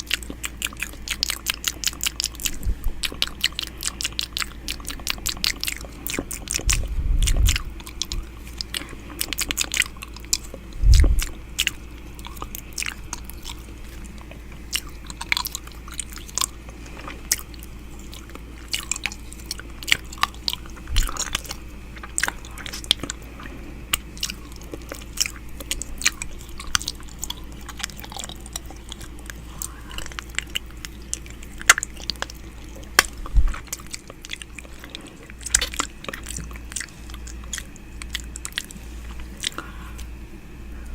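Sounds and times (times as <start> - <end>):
wet mouth clicks and smacks: 24.6 - 34.6.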